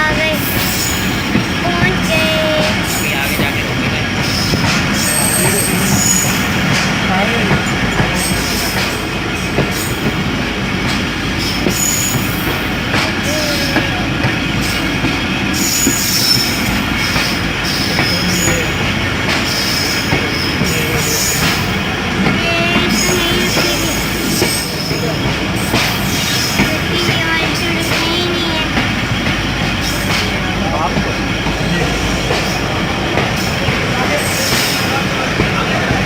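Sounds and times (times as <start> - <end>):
clacks over track: 0.0 - 36.0
train wheels rumbling: 0.0 - 36.0
high-pitched wheel squeals: 4.3 - 6.6, 11.7 - 12.6.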